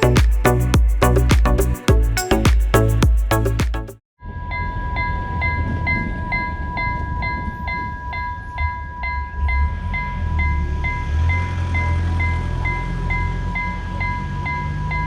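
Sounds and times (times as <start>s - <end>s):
music: 0.0s - 4.0s.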